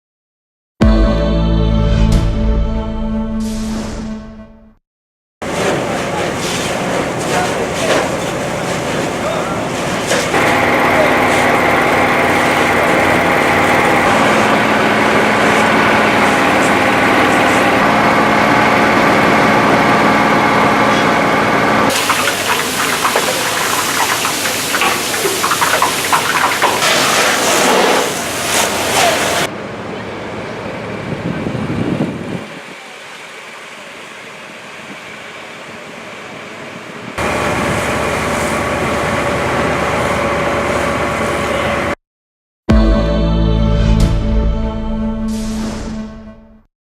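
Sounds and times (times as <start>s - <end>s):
fire engines and pumps running: 5.4s - 42.0s.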